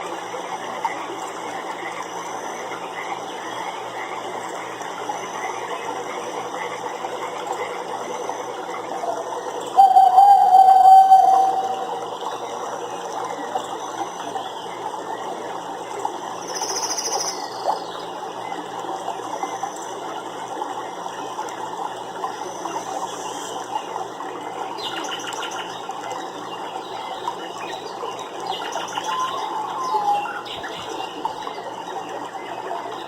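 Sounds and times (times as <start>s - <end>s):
running water: 0.0s - 33.0s
fast ticking calls: 9.1s - 12.5s.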